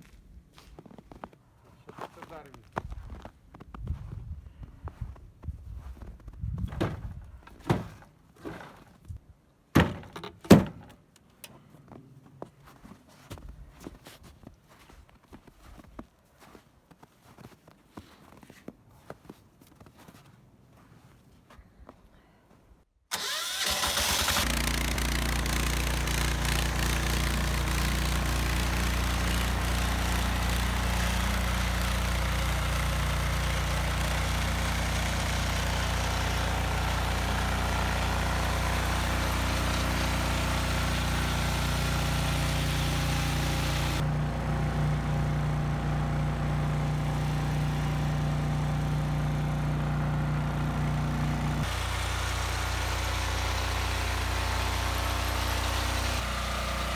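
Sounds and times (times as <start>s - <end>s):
engine humming: 23.1s - 56.9s.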